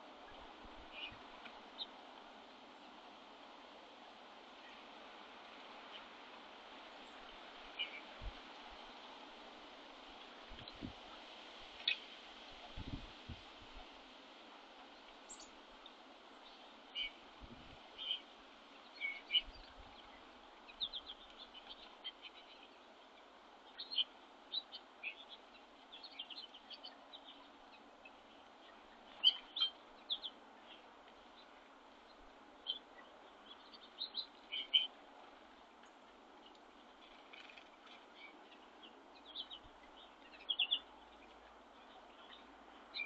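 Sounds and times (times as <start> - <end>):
faint steady hiss: 0.0 - 43.0
small birds chirping: 0.2 - 2.0, 7.0 - 8.7, 14.8 - 43.0.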